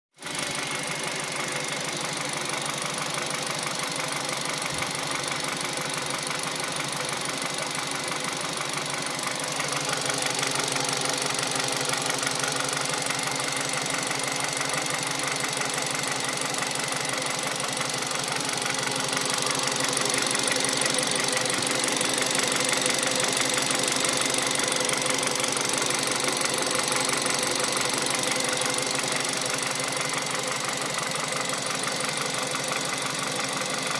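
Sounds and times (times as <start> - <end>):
car engine idling with knock: 0.2 - 33.9.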